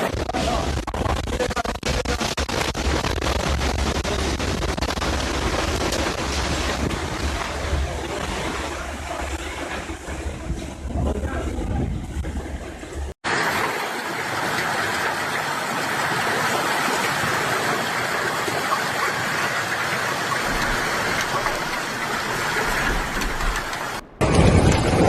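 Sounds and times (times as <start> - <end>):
hail and heavy rain falling: 0.1 - 10.4, 13.3 - 25.0
wind buffeting microphone: 6.6 - 13.1.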